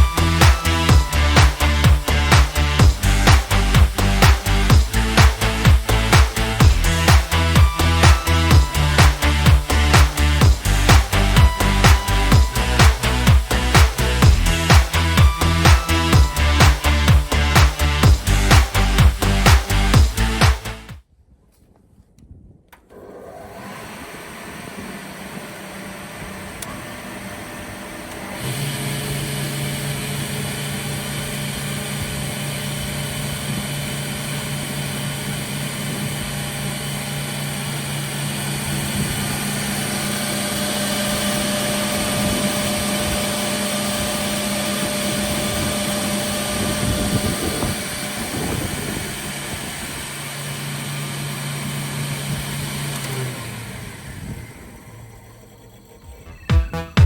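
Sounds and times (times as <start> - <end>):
panel saw motor hum and whine: 0.0 - 20.4, 22.9 - 56.5
second motor deeper hum: 0.0 - 20.8.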